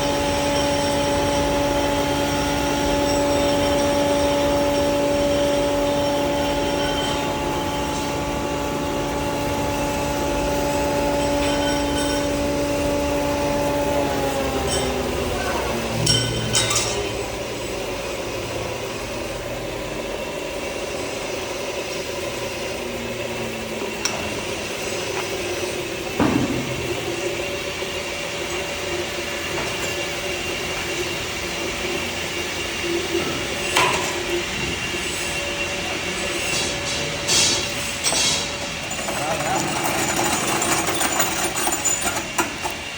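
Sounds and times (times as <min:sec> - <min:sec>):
hammer mill motor hum: 0:00.0 - 0:42.9
rattling grind: 0:00.2 - 0:17.2, 0:38.0 - 0:42.9.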